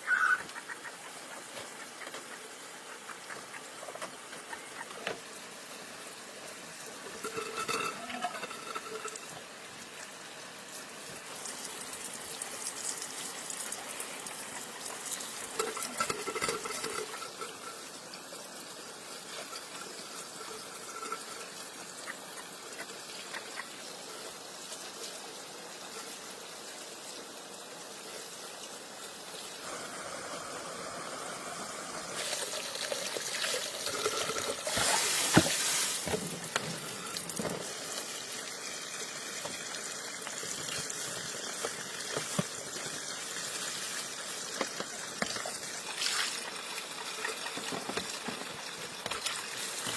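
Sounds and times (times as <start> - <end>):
water trickling and pouring: 5.8 - 23.5, 32.2 - 49.9.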